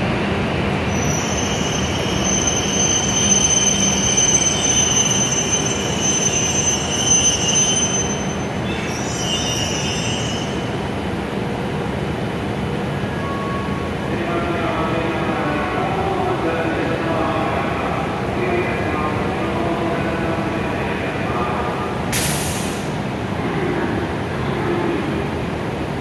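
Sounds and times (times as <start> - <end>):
train rumble: 0.0 - 26.0
high-pitched brake squeal: 0.9 - 10.8.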